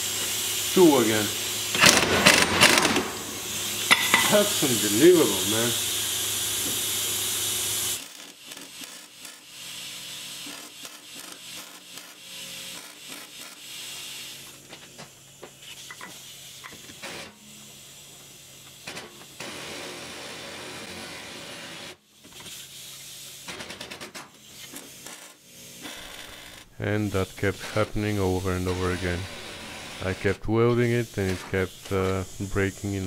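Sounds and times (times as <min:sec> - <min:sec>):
welding crackle: 0:00.0 - 0:14.2
metal tools scraping and knocking: 0:03.9 - 0:04.5.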